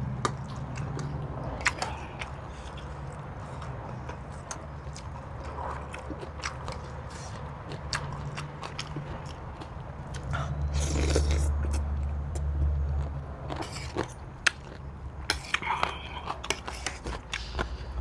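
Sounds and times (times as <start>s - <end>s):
crunchy chewing: 0.0s - 18.0s
wet mouth clicks: 0.2s - 3.7s.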